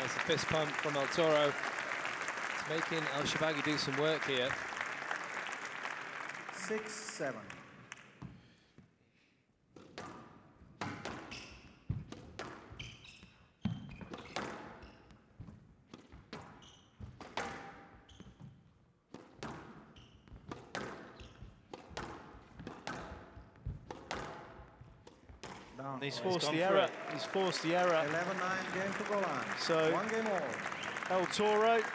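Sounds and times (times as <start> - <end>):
shoes squeaking on court: 10.8 - 25.7.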